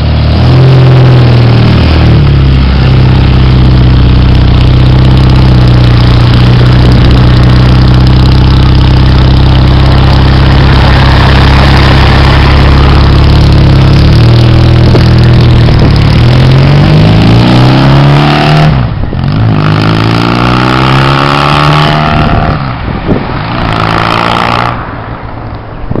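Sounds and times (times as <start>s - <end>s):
motorcycle exhaust accelerating: 0.0s - 25.3s.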